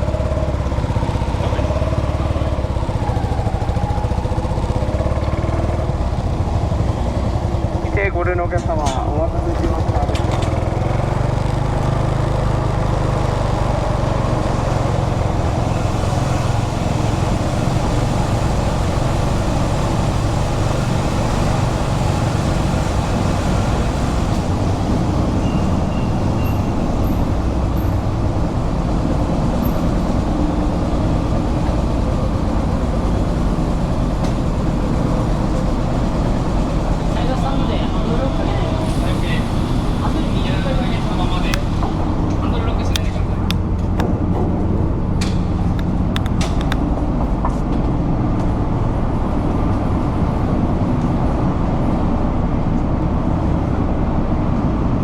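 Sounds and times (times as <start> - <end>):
motorcycle engine running: 0.0 - 50.6.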